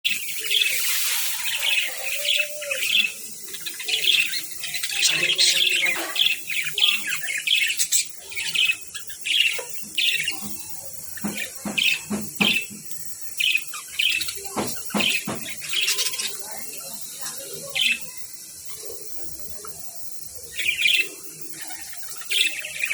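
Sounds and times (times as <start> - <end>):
budgerigars chirping: 1.6 - 12.8, 13.4 - 16.6.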